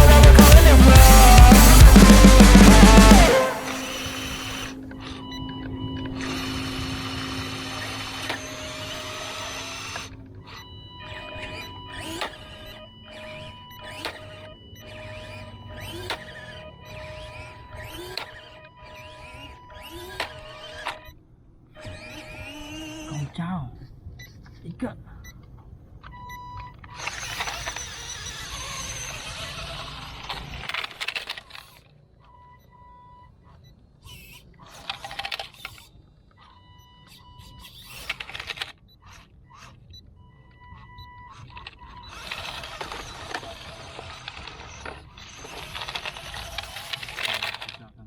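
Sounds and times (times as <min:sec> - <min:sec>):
short electronic beep: 0:00.0 - 0:18.2
rc truck gears rattling: 0:00.0 - 0:24.6, 0:25.2 - 0:32.4, 0:33.3 - 0:48.0
toy vehicle whirring: 0:00.0 - 0:48.0.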